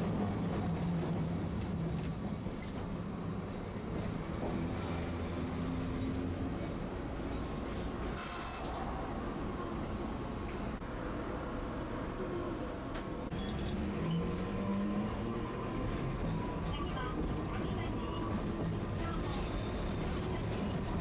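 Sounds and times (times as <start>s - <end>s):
wheels rumbling on rail: 0.0s - 21.0s
wheel squeal: 8.2s - 8.8s, 13.3s - 14.2s.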